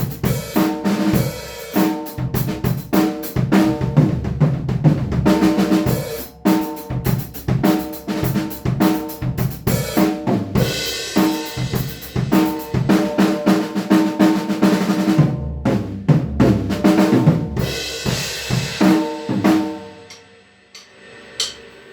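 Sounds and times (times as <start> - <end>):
drum kit groove: 0.0 - 21.9
cymbal crashes: 17.8 - 21.9.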